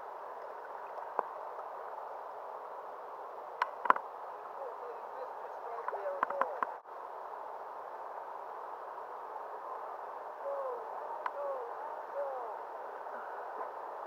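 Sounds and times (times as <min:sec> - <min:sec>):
light ticks: 0:11.2 - 0:11.4.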